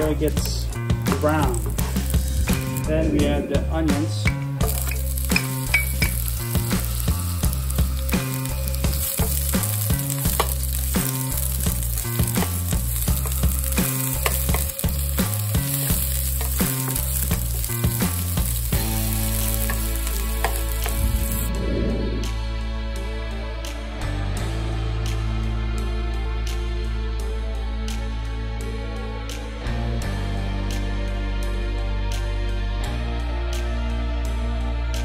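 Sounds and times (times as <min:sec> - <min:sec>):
onions sizzling in oil: 0:01.0 - 0:02.9, 0:04.3 - 0:21.5.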